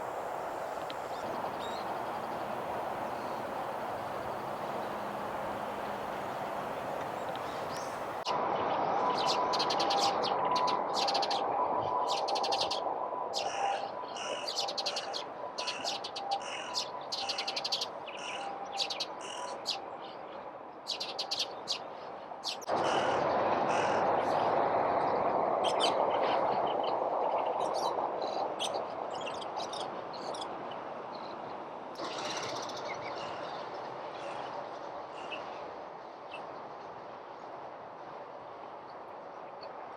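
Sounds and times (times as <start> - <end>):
birds chirping: 0.0 - 8.2
steady background noise: 0.0 - 39.9.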